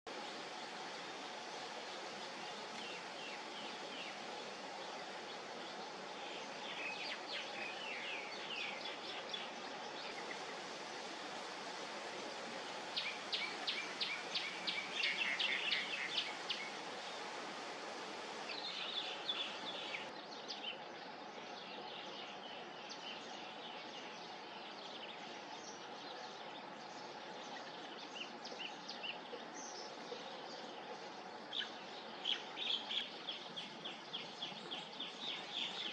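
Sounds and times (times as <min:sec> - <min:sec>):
steady background hiss: 0:00.1 - 0:35.9
birds chirping: 0:12.7 - 0:35.9.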